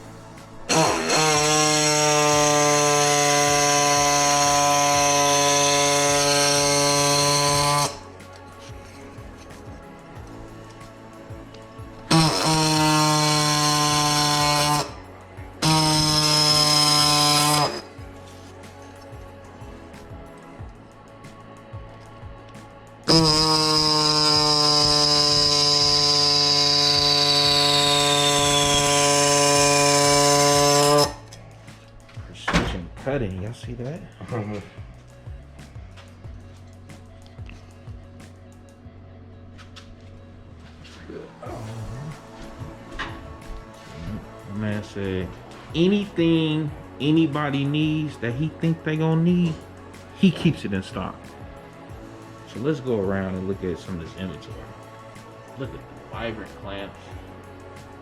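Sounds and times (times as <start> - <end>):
power tool motor whining: 0.0 - 10.8, 11.5 - 18.0, 23.1 - 31.2.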